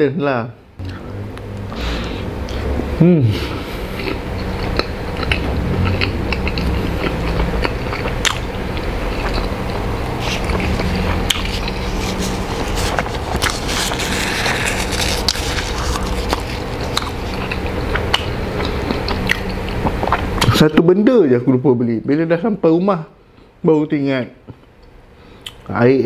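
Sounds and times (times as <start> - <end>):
chewing with wet mouth clicks: 4.0 - 12.3, 12.9 - 13.7, 15.2 - 20.7.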